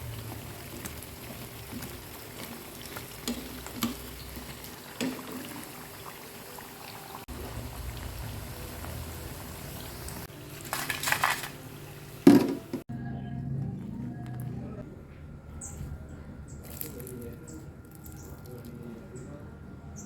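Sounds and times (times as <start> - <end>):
fritters sizzling in oil: 0.0 - 6.3, 7.0 - 11.5.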